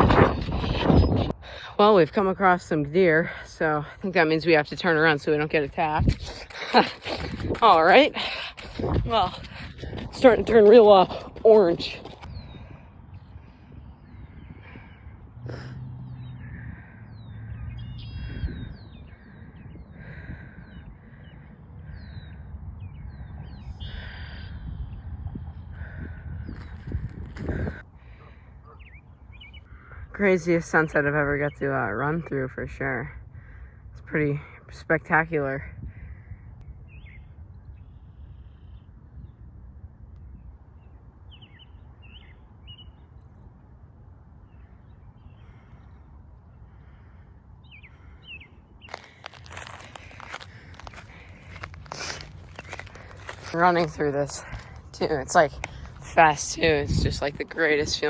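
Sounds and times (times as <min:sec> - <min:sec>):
low rumble of wind: 0:00.0 - 0:58.0
songbirds chirping: 0:00.4 - 0:27.1, 0:27.8 - 0:58.0
running footsteps: 0:05.1 - 0:12.4, 0:48.9 - 0:58.0
birds calling harshly: 0:14.0 - 0:25.0, 0:46.7 - 0:58.0.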